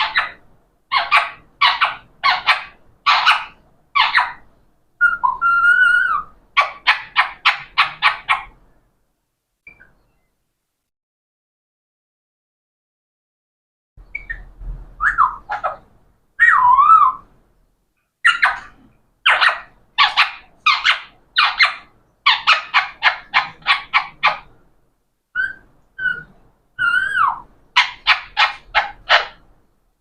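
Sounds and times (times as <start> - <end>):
parrot calling: 0.0 - 8.6, 14.0 - 17.3, 18.2 - 24.6, 25.4 - 29.5.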